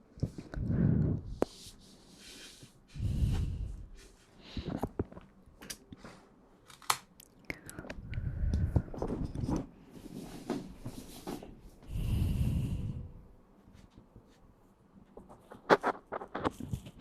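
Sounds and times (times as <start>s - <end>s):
heavy breaths: 0.4s - 5.0s, 7.8s - 9.3s, 10.0s - 13.3s
soft clicks and rustles: 13.6s - 17.0s.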